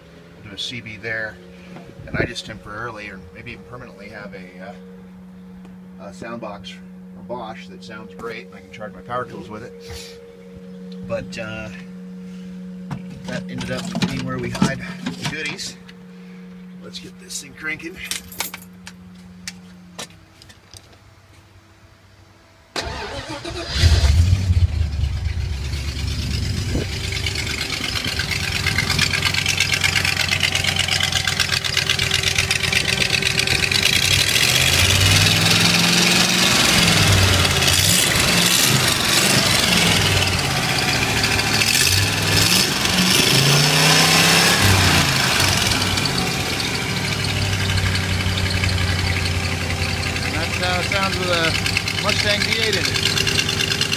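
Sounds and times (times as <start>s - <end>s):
engine idling: 0.0s - 19.7s, 22.7s - 53.9s
engine cranking: 22.8s - 53.9s
engine revving: 22.8s - 53.9s.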